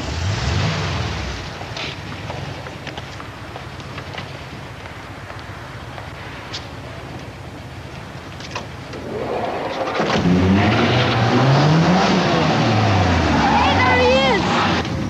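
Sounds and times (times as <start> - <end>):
car engine accelerating hard: 0.0 - 2.4, 8.9 - 15.0.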